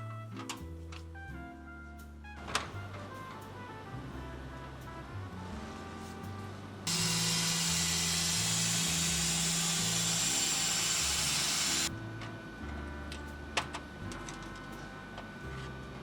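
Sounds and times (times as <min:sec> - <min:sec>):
power tool running: 0:06.9 - 0:11.9.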